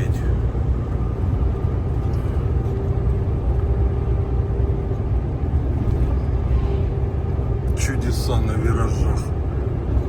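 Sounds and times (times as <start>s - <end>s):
truck engine and tyres rumbling: 0.0s - 10.0s.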